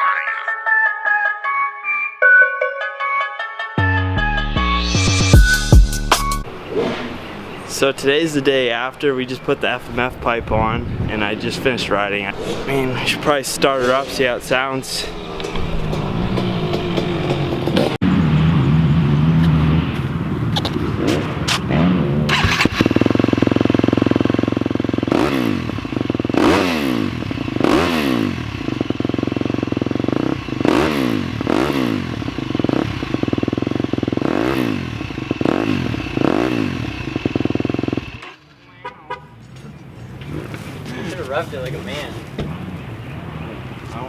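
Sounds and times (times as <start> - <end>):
motorcycle engine idling and revving: 9.4 - 44.0.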